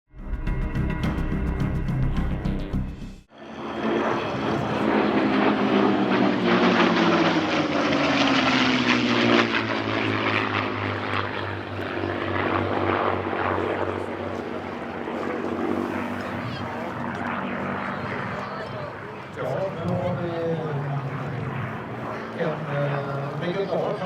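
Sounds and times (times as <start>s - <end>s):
propeller plane flying past: 0.2s - 24.0s.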